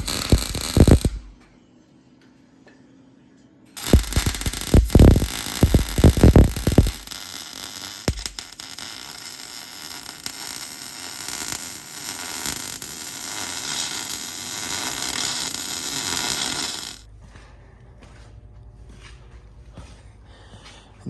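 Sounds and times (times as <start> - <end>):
welding arc crackling and hissing: 0.0 - 1.4, 3.8 - 17.1.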